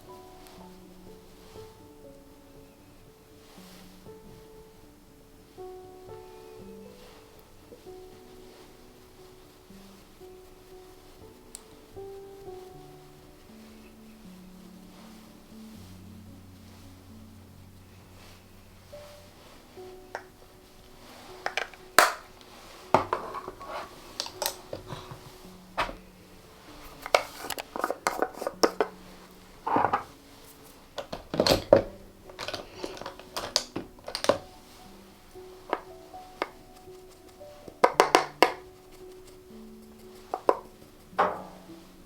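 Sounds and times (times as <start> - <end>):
quiet background music: 0.0 - 42.0
plastic containers clicking and knocking: 21.4 - 22.3, 23.0 - 25.2, 27.0 - 29.0, 31.0 - 34.5, 37.8 - 38.6.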